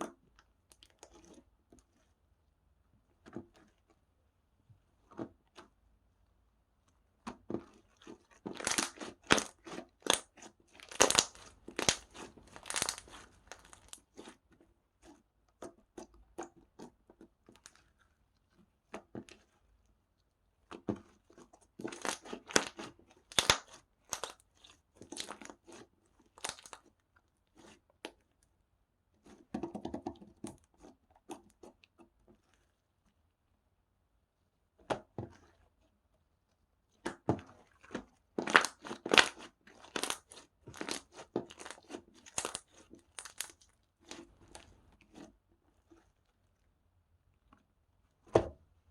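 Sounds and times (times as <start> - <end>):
slime crackling and popping: 8.0 - 14.3, 21.8 - 26.9, 37.8 - 44.8.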